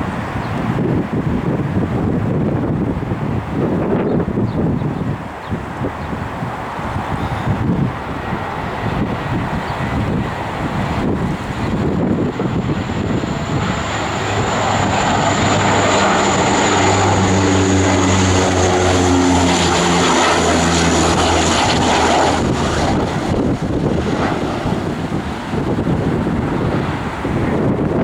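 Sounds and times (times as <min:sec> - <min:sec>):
aircraft engine passing: 0:00.0 - 0:28.0
high engine whine: 0:07.0 - 0:28.0.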